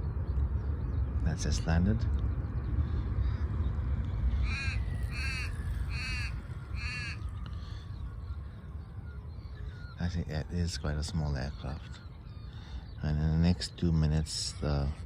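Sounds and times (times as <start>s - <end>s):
crow cawing: 4.3s - 7.8s.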